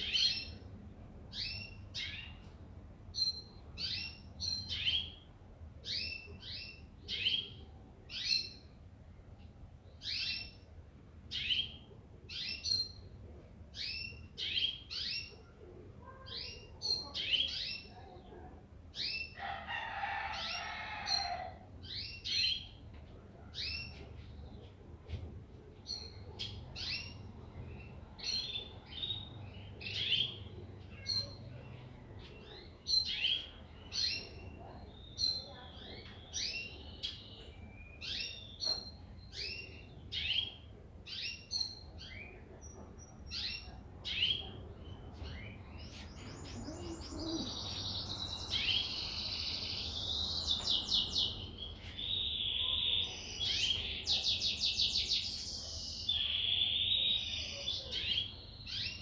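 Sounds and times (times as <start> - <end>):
songbird chirping and trilling: 13.8 - 18.4, 25.8 - 59.0.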